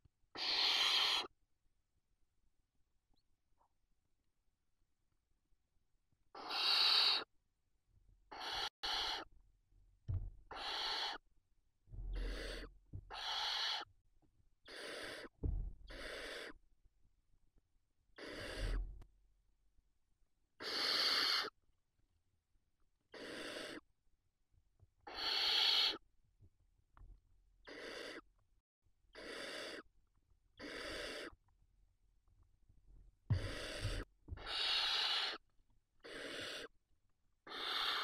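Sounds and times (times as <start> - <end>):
owl chicks hissing begging calls: 0.3 - 1.3, 6.3 - 7.3, 8.3 - 9.3, 10.5 - 11.2, 12.1 - 13.9, 14.6 - 16.6, 18.2 - 18.8, 20.6 - 21.6, 23.1 - 23.9, 25.0 - 26.0, 27.6 - 28.3, 29.1 - 29.9, 30.6 - 31.4, 33.3 - 35.4, 36.0 - 36.8, 37.4 - 38.0.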